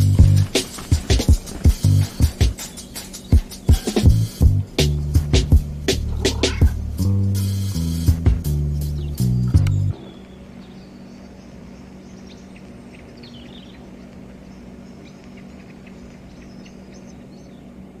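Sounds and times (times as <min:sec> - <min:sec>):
background music: 0:00.0 - 0:10.2
small birds chirping: 0:00.0 - 0:18.0
faint low hum: 0:04.1 - 0:18.0.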